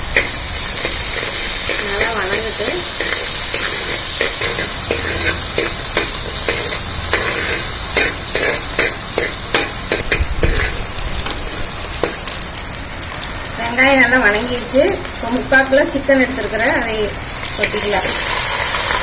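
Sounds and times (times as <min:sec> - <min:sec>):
shallots sizzling in hot oil: 0:00.0 - 0:19.0
steel spoon scraping clay pot: 0:00.1 - 0:10.8.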